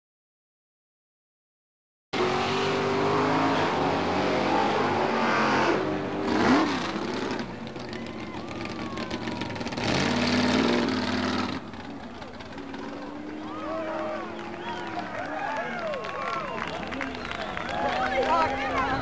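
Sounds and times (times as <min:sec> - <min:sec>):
racing car engine at full throttle: 0:02.2 - 0:15.2.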